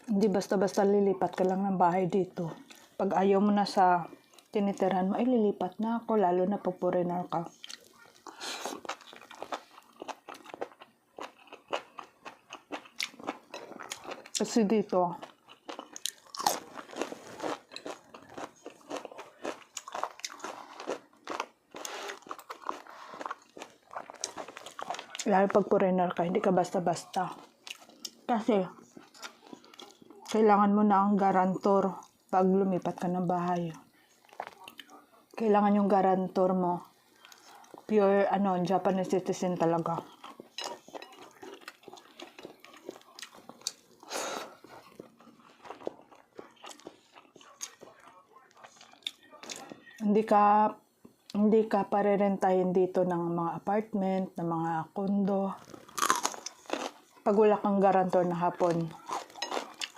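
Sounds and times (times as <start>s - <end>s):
person chewing food: 7.6s - 14.4s, 15.2s - 25.6s, 27.0s - 30.4s, 34.1s - 35.2s, 37.0s - 37.9s, 39.8s - 50.0s, 55.6s - 57.2s, 58.4s - 59.9s.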